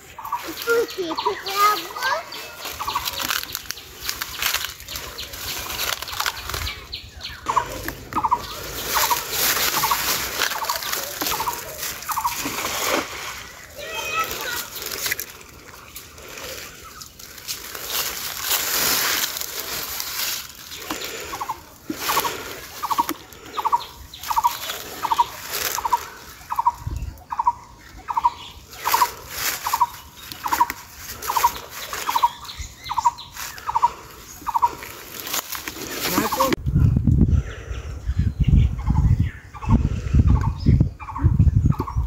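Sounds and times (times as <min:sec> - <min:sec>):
water splashing and sloshing: 0:07.6 - 0:23.5.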